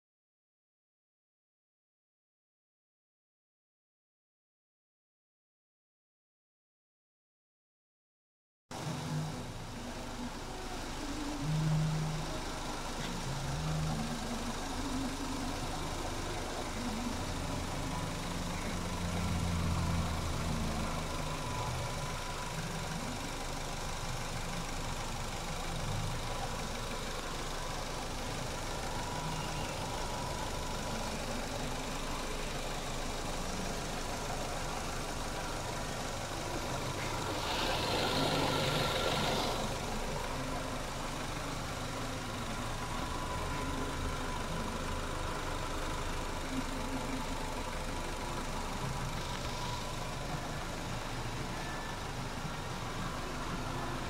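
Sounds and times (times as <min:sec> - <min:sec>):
car engine idling: 0:08.7 - 0:54.0.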